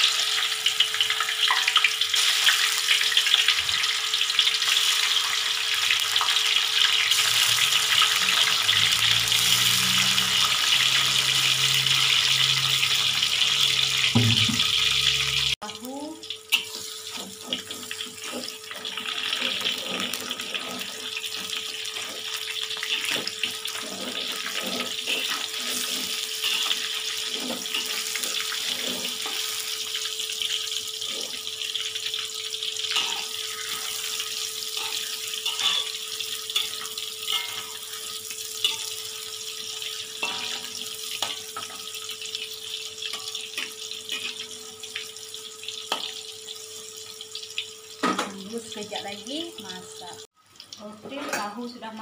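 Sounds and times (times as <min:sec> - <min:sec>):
tofu sizzling in oil: 0:00.0 - 0:52.0
spatula scraping and tapping pan: 0:16.5 - 0:29.5.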